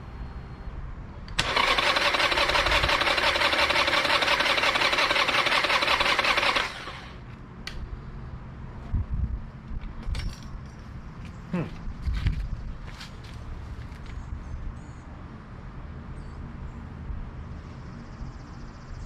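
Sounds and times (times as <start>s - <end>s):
motorcycle starter motor cranking: 1.3s - 7.2s.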